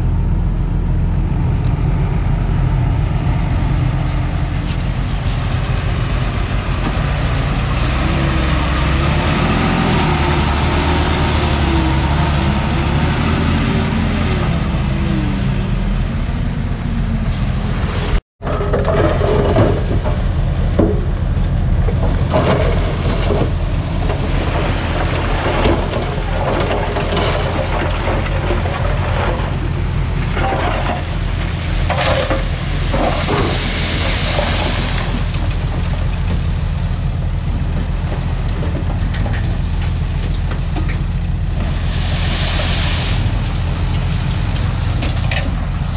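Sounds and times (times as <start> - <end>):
bulldozer diesel engine under load: 0.0 - 45.9
clanks and knocks from tracks: 18.4 - 41.8.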